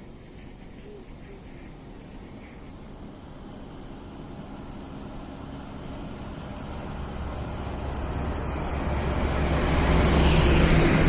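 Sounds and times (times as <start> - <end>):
truck engine drone: 0.0 - 11.0
tyre noise on road: 0.0 - 11.0.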